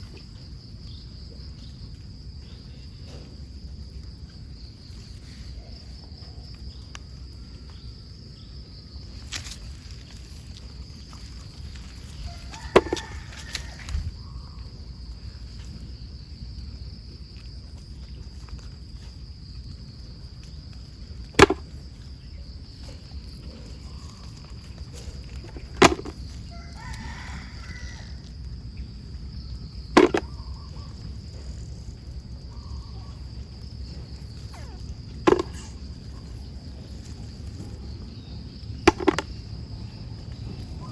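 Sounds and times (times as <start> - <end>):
sharp knocks: 21.4 - 21.6, 25.8 - 26.1, 30.0 - 30.3, 35.3 - 35.7, 38.9 - 39.3.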